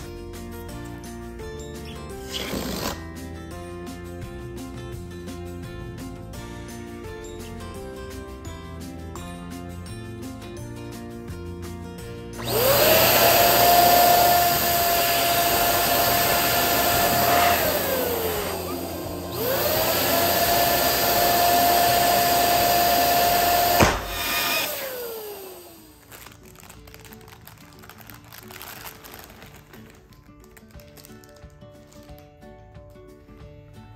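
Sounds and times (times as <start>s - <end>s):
electric balloon pump whining: 2.2s - 3.1s, 12.4s - 26.4s
sharp snap: 23.7s - 24.7s.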